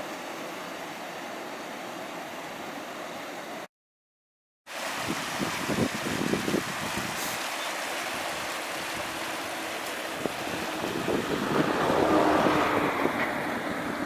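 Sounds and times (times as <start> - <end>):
stream rushing over rocks: 4.7 - 14.0
wind buffeting microphone: 5.0 - 7.2, 10.1 - 14.0.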